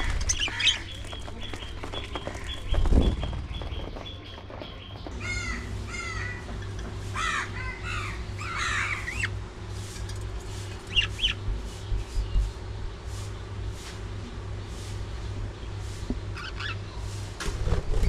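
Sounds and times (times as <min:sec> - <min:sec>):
budgerigars chirping and calling: 0:00.0 - 0:06.5, 0:07.2 - 0:09.4, 0:10.8 - 0:12.0, 0:16.3 - 0:17.0
steady low hum: 0:00.0 - 0:18.0.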